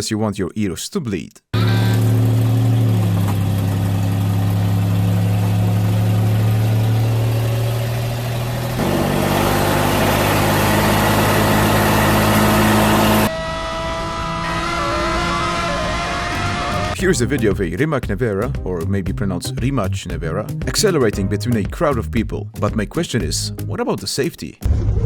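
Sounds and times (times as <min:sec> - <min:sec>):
engine low drone: 0:01.6 - 0:14.5.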